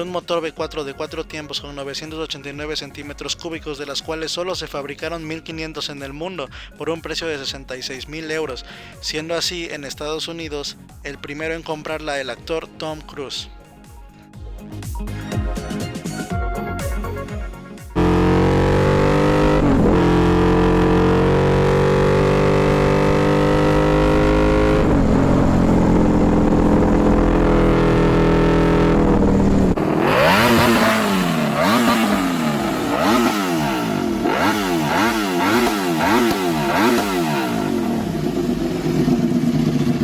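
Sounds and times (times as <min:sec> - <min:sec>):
motorcycle engine revving: 0:17.9 - 0:40.0.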